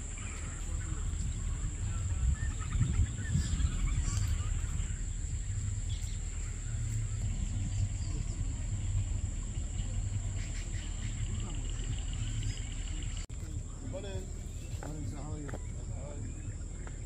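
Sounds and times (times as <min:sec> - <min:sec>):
high-pitched insect drone: 0:00.0 - 0:13.2
birds chirping: 0:00.0 - 0:17.0
low rumble: 0:00.0 - 0:17.0.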